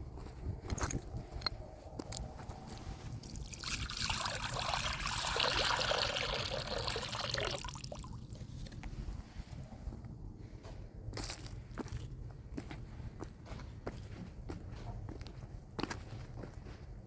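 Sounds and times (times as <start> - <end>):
water pouring: 3.2 - 8.4.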